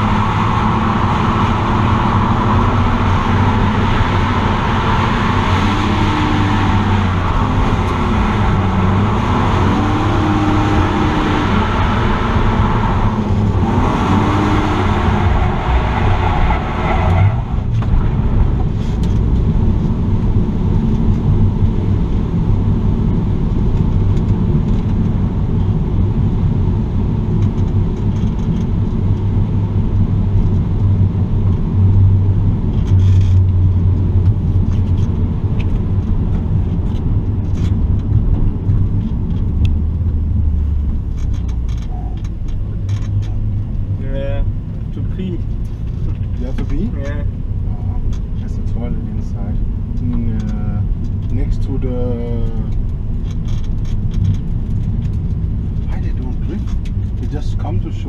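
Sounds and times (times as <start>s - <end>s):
car engine revving: 0.0s - 25.0s
road noise inside car: 0.0s - 58.0s.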